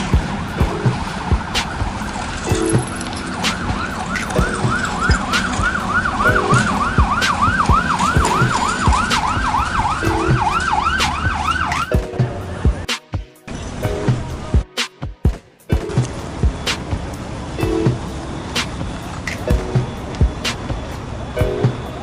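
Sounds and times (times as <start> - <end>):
siren yelping: 0.0 - 12.9
noisy background: 0.0 - 22.0.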